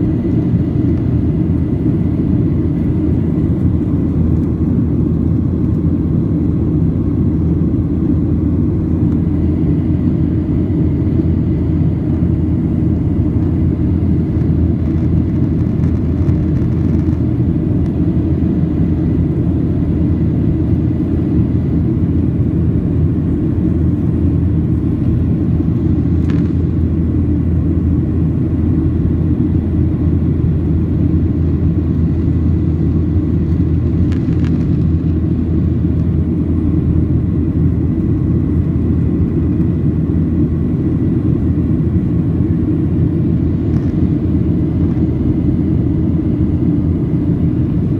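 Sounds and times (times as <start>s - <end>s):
jet cabin engine rumble: 0.0s - 47.9s.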